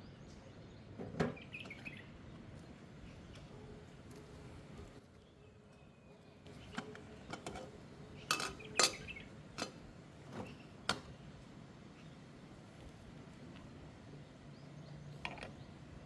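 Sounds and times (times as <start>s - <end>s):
utensils clinking against cookware: 8.3s - 9.7s.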